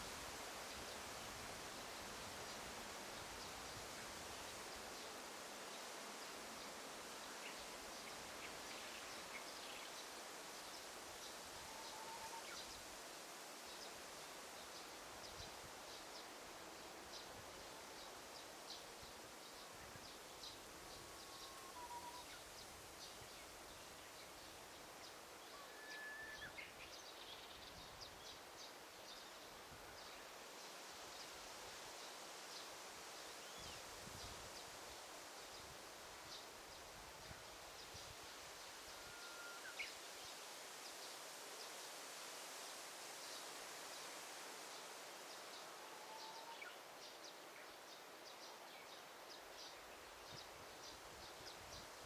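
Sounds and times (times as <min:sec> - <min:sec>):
whistled bird notes: 0:25.6 - 0:26.7, 0:39.0 - 0:39.9.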